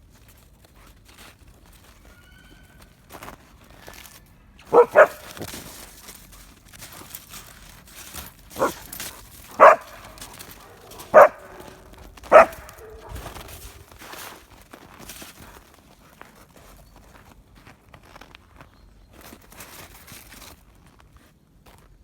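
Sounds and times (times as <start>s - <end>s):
dog barking: 4.7s - 5.4s, 8.6s - 8.9s, 9.5s - 13.7s.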